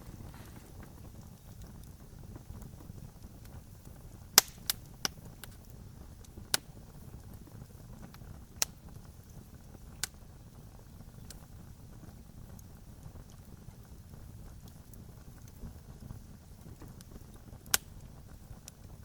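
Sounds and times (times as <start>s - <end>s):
low rumble of burning: 0.0s - 19.0s
wood fire crackling: 0.0s - 19.0s.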